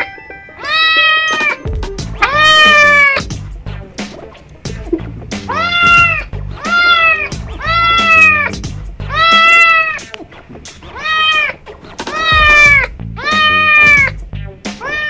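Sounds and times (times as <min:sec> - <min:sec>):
kitten meowing loudly: 0:02.2 - 0:03.2, 0:05.5 - 0:08.5, 0:11.0 - 0:11.5, 0:12.2 - 0:14.1, 0:14.8 - 0:15.0.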